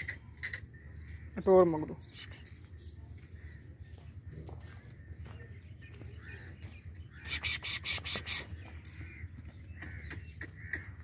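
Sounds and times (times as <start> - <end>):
low background rumble: 0.0 - 7.3
birds calling: 0.0 - 11.0.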